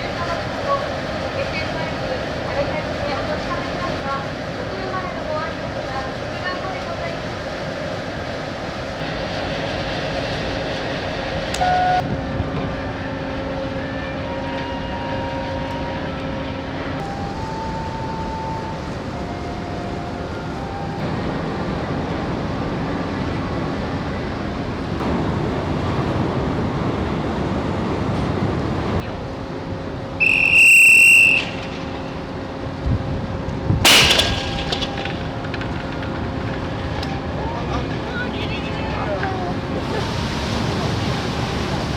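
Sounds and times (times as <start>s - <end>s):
machinery rumbling: 0.0s - 41.9s
wind on ship deck: 0.0s - 41.9s
high-pitched whistle blast: 30.2s - 31.9s
sharp bang: 33.8s - 35.4s.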